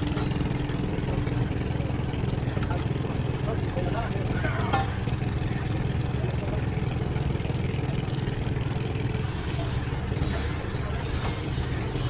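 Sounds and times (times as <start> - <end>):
engine idling: 0.0 - 12.0
short hissing bursts: 9.2 - 12.0.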